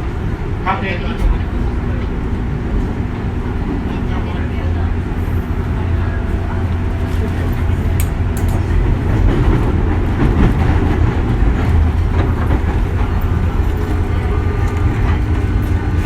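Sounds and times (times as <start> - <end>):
train wheels rumbling on rail: 0.0 - 16.0
faint steady tones: 12.0 - 16.0.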